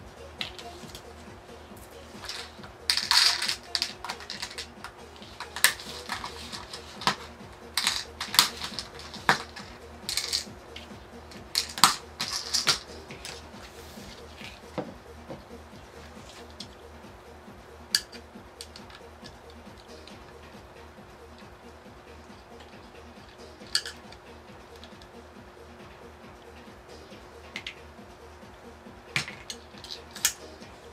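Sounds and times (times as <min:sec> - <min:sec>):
small parts and tools clicking: 0:01.8 - 0:13.5, 0:17.9 - 0:20.2, 0:22.6 - 0:25.1, 0:29.1 - 0:30.6.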